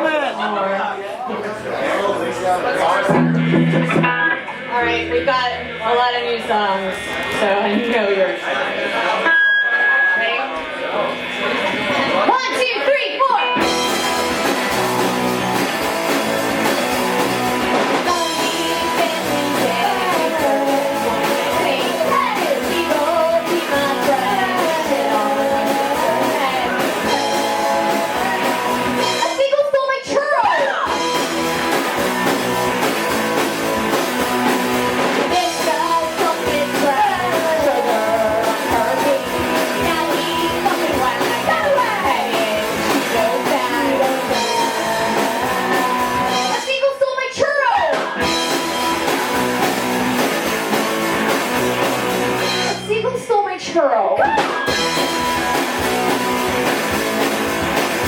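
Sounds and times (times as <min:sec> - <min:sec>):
guitar: 0:01.4 - 0:58.0
live rock band playing: 0:02.4 - 0:10.2, 0:11.1 - 0:58.0
person singing: 0:18.1 - 0:29.4, 0:35.3 - 0:46.9.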